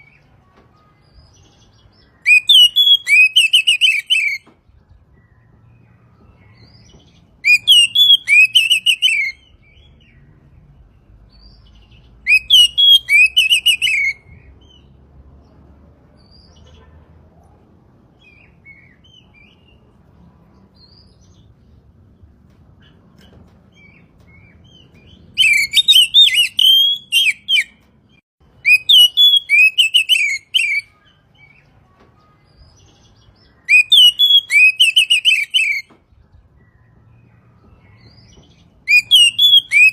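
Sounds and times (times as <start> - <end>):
bird singing whistled phrases: 1.1 - 4.5, 7.4 - 10.0, 12.2 - 14.5, 25.4 - 27.8, 28.6 - 31.6, 32.5 - 35.9, 38.8 - 39.9.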